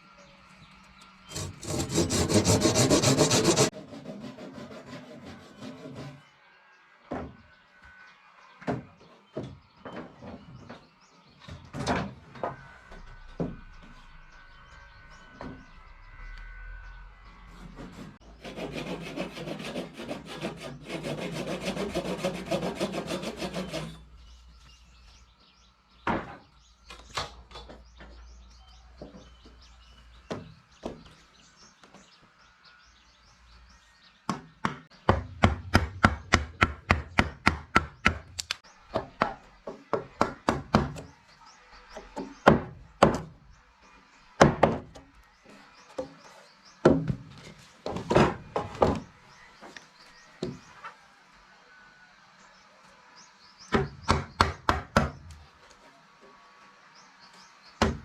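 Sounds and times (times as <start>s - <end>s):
saw cutting wood: 1.2s - 6.4s, 12.3s - 24.4s
sharp knocks on wood: 34.3s - 38.3s.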